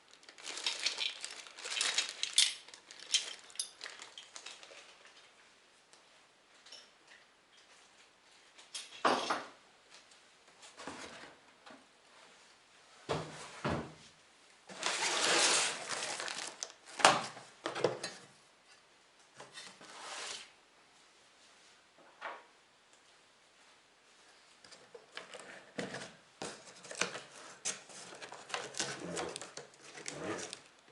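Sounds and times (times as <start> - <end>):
rustling scrape of packaging: 0.1 - 5.1, 14.7 - 17.0, 19.6 - 20.6, 26.6 - 30.7.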